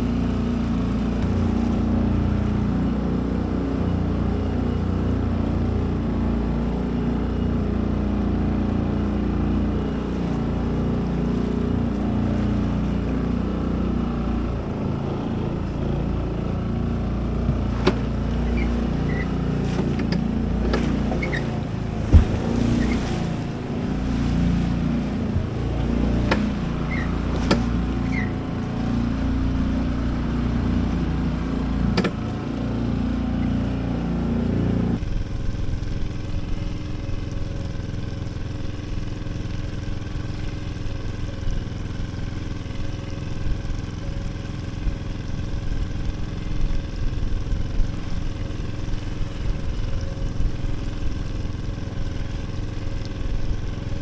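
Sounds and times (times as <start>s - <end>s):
boat engine running: 0.0s - 54.0s
sharp knocks: 17.5s - 29.5s, 32.0s - 32.4s.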